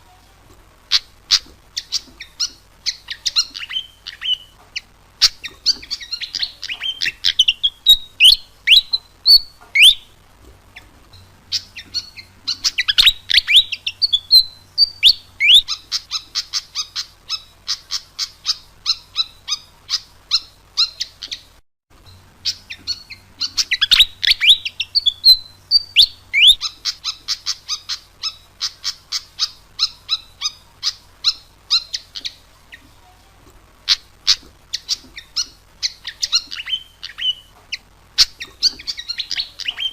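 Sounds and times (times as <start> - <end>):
bird singing whistles: 1.8 - 4.6, 5.2 - 10.2, 11.5 - 21.5, 22.4 - 32.4, 33.9 - 37.5.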